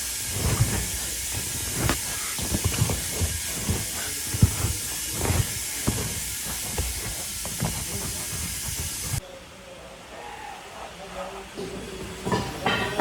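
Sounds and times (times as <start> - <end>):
compressed air hissing: 0.0 - 9.2.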